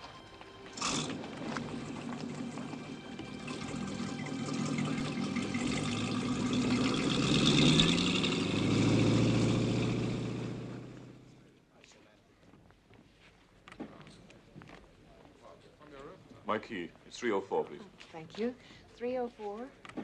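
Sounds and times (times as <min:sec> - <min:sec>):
water wash: 0:00.8 - 0:08.8
motorboat engine running: 0:00.8 - 0:11.1.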